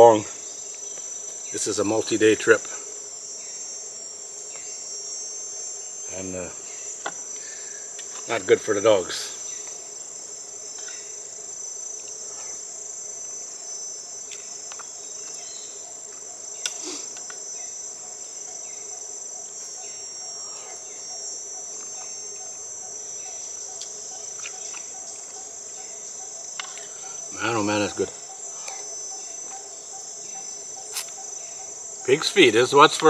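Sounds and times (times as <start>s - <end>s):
insects buzzing: 0.0s - 33.0s.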